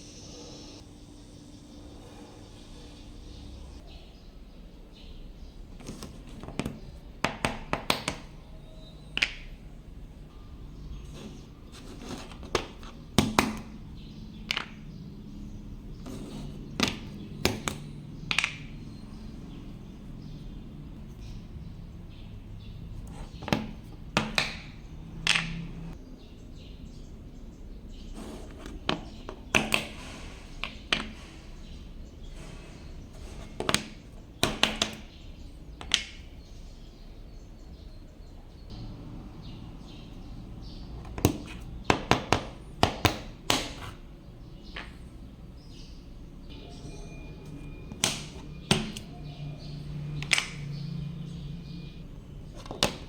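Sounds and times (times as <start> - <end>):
sharp knocks and clicks: 47.7 - 49.2.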